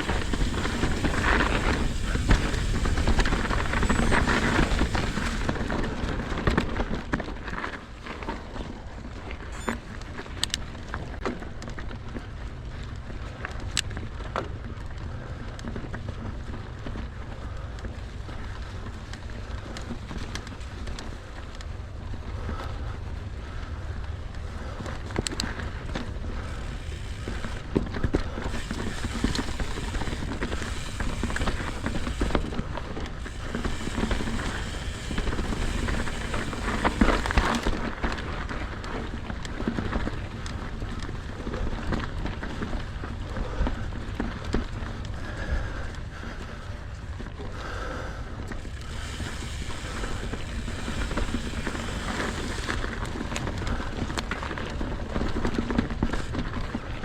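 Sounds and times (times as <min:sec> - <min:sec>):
bike tyres crunching on ground: 0:00.0 - 0:45.4, 0:46.1 - 0:57.0
bike chain and frame rattling: 0:00.0 - 0:57.0.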